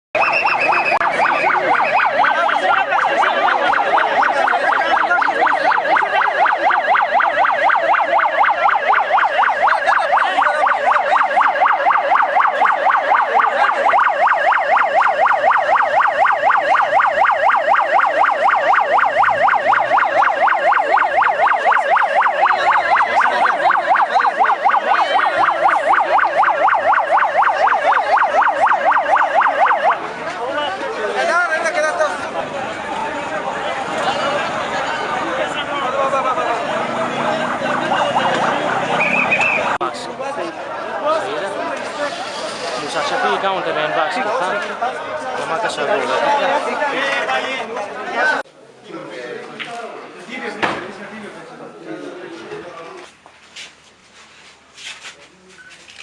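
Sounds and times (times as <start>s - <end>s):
siren warbling: 0.2s - 30.1s, 36.3s - 39.8s.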